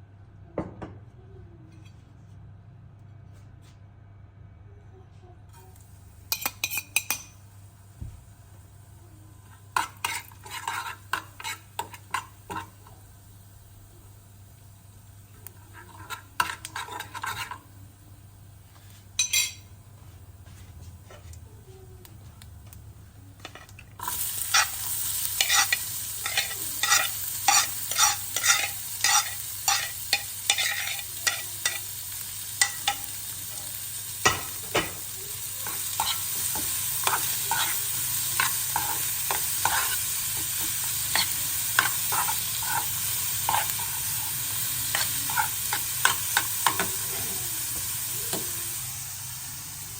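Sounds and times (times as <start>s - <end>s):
food sizzling in oil: 5.7s - 18.4s, 23.5s - 49.9s.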